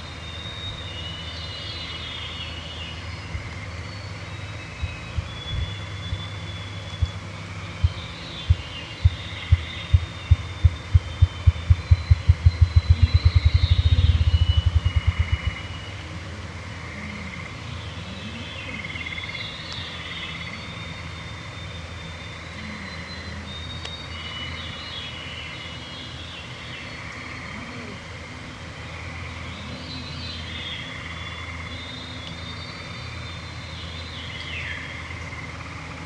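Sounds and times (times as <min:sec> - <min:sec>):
grouse drumming thumps: 0:07.8 - 0:15.6.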